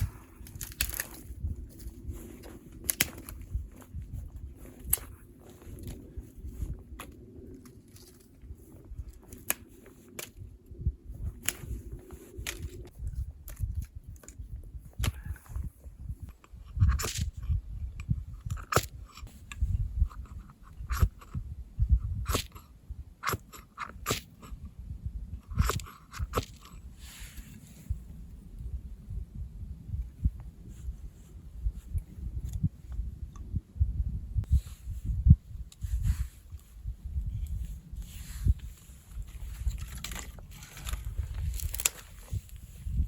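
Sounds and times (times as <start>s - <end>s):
crunching: 0.0s - 10.4s, 39.2s - 42.6s.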